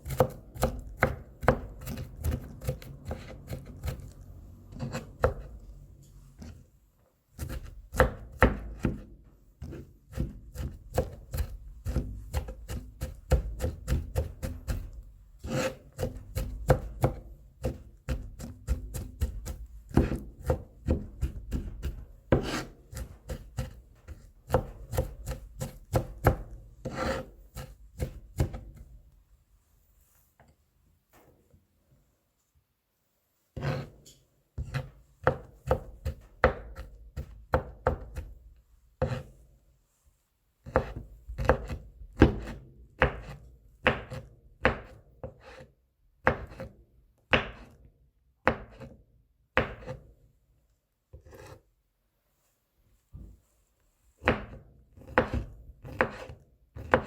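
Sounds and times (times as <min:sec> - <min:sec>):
knife chopping on cutting board: 0:00.0 - 0:05.6, 0:07.4 - 0:28.8, 0:33.6 - 0:34.0, 0:34.6 - 0:38.4, 0:39.0 - 0:39.3, 0:40.6 - 0:45.6, 0:46.2 - 0:47.8, 0:48.4 - 0:49.0, 0:49.6 - 0:50.1, 0:51.1 - 0:51.6, 0:54.2 - 0:57.0.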